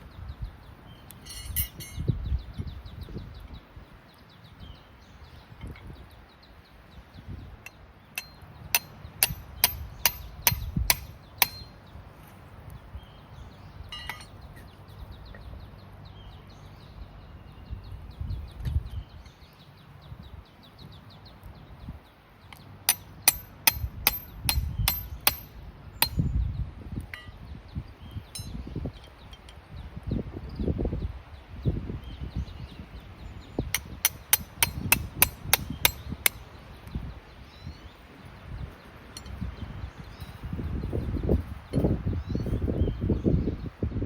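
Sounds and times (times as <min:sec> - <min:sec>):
hammer striking metal: 0:08.2 - 0:11.7, 0:13.9 - 0:14.3, 0:22.9 - 0:26.2, 0:33.8 - 0:36.4.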